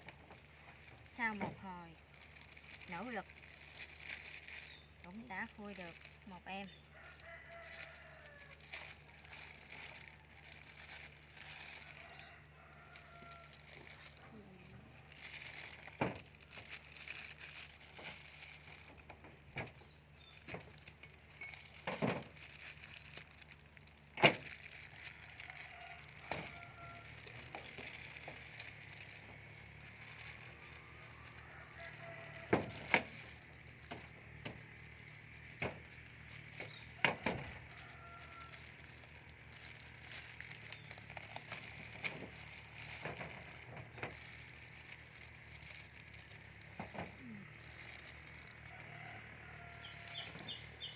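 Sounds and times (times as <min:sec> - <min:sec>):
spiny fruit rind cracking: 0:00.0 - 0:50.9.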